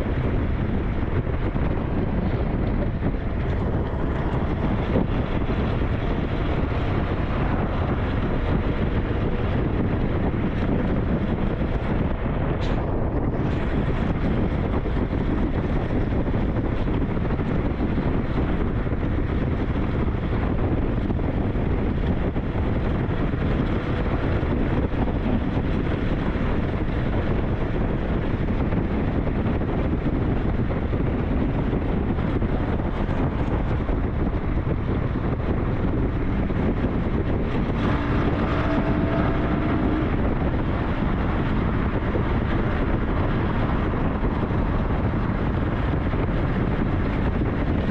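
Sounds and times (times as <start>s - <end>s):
wind buffeting microphone: 0.0s - 47.9s
motorcycle engine: 32.9s - 47.9s.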